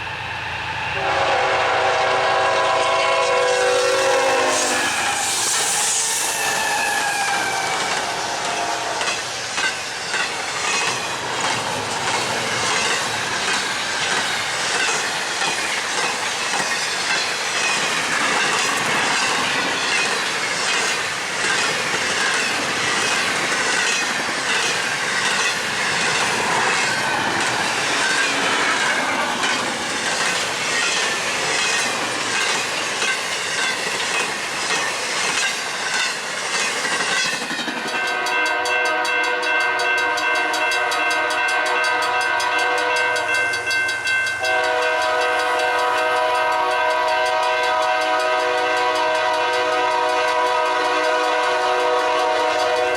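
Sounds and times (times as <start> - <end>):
freight train wheels clicking: 3.7 - 52.9.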